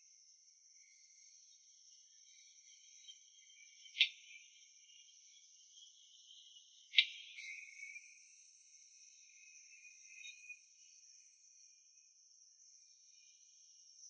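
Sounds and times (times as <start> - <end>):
insect chorus chirring: 0.0 - 14.0.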